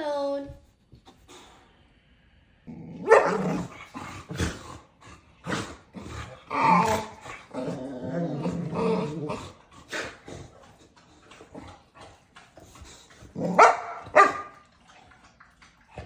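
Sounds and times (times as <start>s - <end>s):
dog barking: 3.0s - 3.7s, 13.5s - 14.6s.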